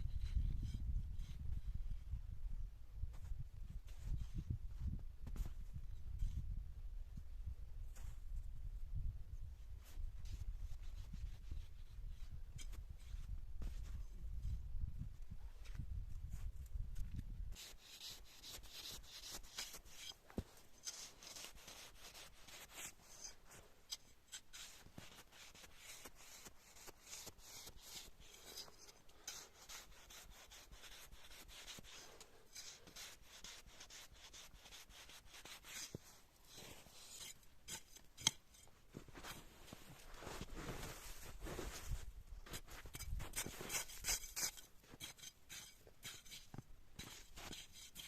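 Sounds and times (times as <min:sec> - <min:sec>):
short scraping strokes: 0:34.6 - 0:48.0.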